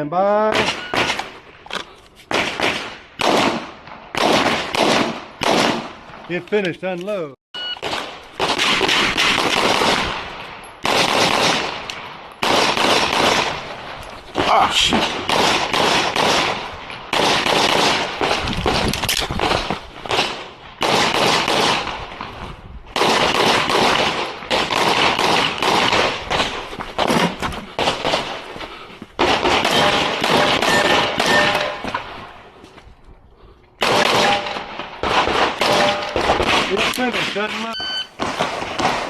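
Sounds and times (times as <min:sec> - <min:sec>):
rapid handgun fire: 0:02.3 - 0:06.0, 0:07.8 - 0:11.8, 0:12.4 - 0:13.7, 0:15.0 - 0:18.4, 0:20.1 - 0:22.0.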